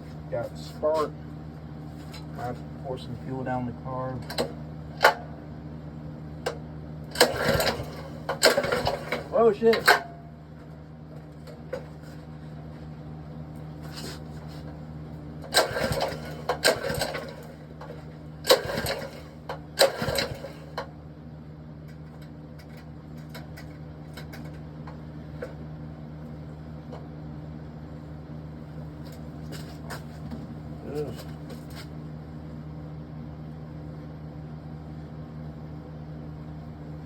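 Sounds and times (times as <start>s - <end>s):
steady low hum: 0.0s - 37.0s
engine pull-starter rattling: 7.1s - 10.1s, 15.4s - 20.9s.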